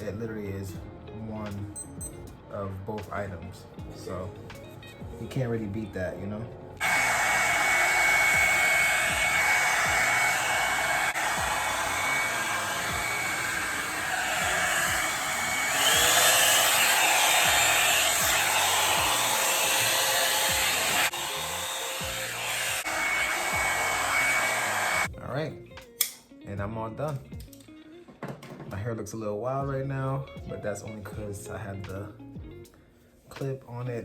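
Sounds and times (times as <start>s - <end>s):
hair dryer blowing with whine: 6.8s - 25.1s.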